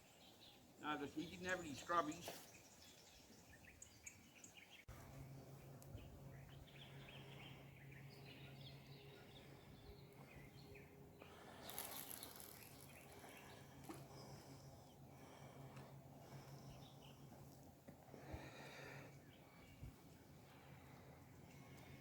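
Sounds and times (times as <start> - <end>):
low steady hum: 4.9 - 22.0.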